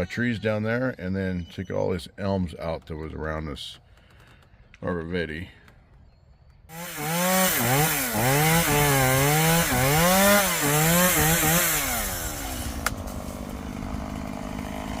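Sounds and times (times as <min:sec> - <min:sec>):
chainsaw revving: 0:06.7 - 0:15.0.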